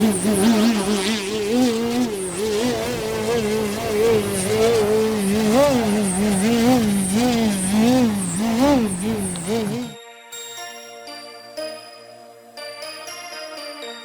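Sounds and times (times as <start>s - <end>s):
electric motor and propeller whine: 0.0s - 10.0s.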